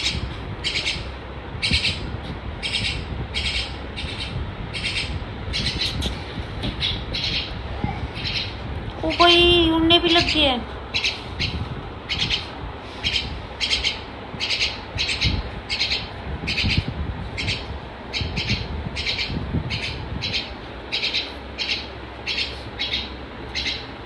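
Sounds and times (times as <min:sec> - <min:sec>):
little bird cheeping: 0:06.8 - 0:09.3.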